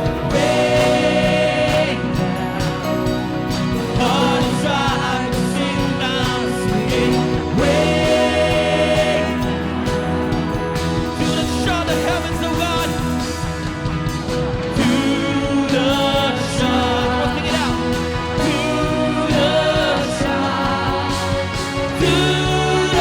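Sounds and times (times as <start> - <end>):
live worship band playing: 0.0 - 23.0.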